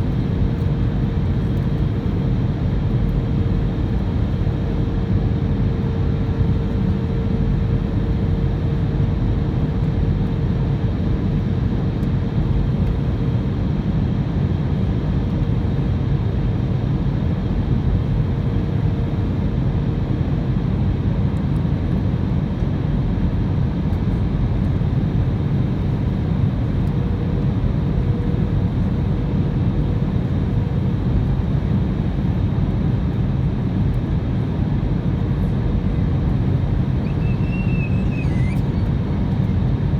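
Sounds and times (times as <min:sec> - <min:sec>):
aircraft cabin engine rumble: 0:00.0 - 0:39.9
faint steady hum: 0:24.1 - 0:39.9.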